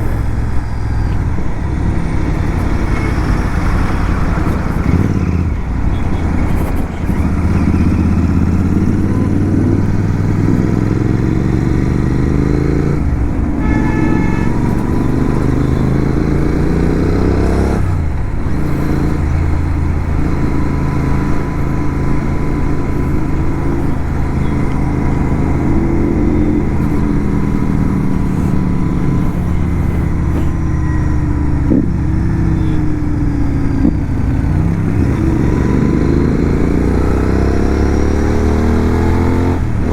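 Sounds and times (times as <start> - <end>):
motorcycle engine accelerating: 0.0 - 39.9
horn-like beep: 2.3 - 9.8, 13.5 - 16.5, 29.0 - 31.6.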